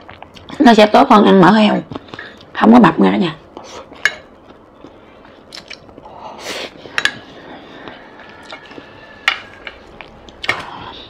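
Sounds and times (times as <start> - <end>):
chewing and mouth sounds: 0.0 - 0.6, 3.6 - 6.2, 6.8 - 10.8.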